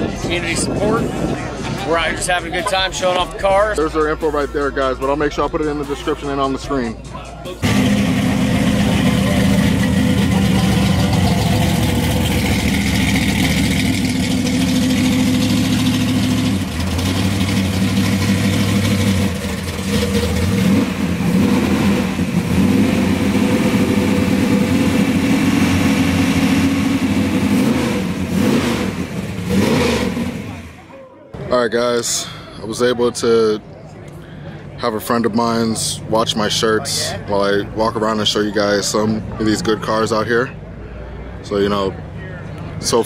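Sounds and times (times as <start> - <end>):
car engine idling and revving: 0.0 - 30.9.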